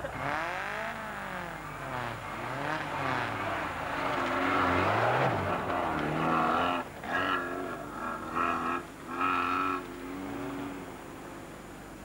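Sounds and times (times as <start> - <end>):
off-road car engine revving: 0.0 - 11.2.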